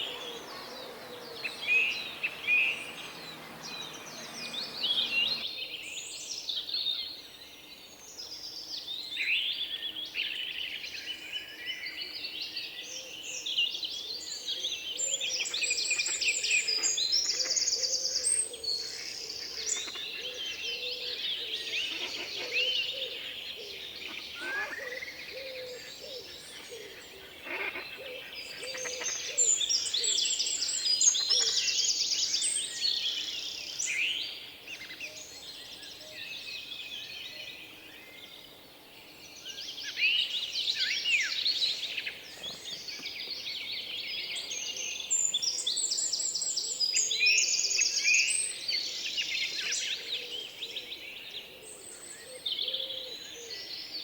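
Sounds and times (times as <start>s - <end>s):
small birds chirping and trilling: 0.0s - 5.4s
faint outdoor background: 0.0s - 5.5s.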